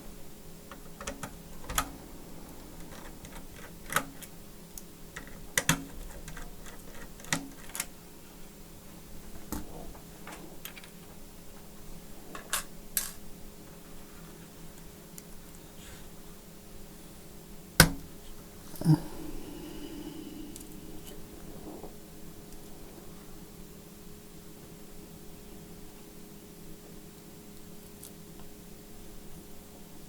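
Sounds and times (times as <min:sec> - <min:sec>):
low steady hum: 0:18.8 - 0:21.8.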